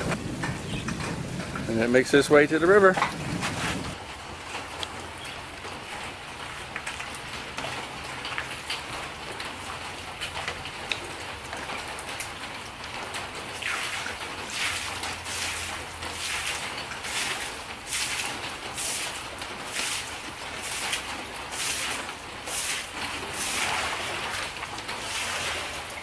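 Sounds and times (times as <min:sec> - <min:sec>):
rain falling steadily: 0:00.0 - 0:26.0
raindrops tapping sharply: 0:00.0 - 0:26.0.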